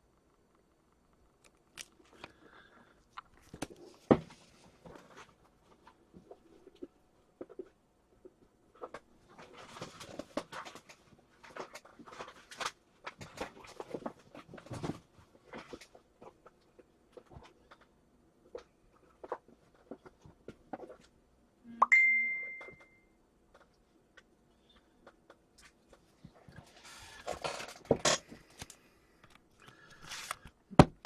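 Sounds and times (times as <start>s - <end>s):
cards crinkling and clicking: 1.4s - 2.5s, 27.2s - 30.6s
bright chime: 21.8s - 23.0s.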